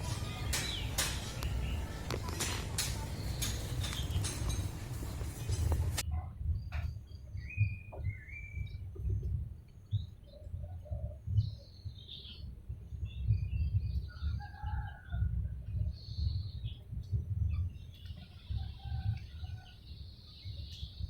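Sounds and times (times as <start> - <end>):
chickens chirping and calling: 0.0 - 6.0.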